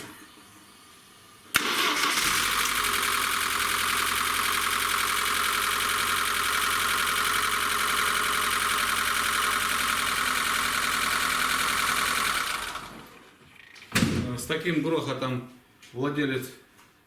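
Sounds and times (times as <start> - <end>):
rapid engine rattle: 2.2 - 13.2
car engine idling: 2.3 - 13.2.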